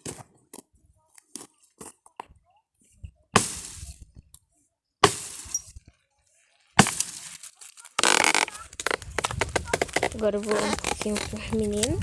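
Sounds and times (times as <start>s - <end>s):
firewood thrown onto a pile: 6.7s - 10.1s.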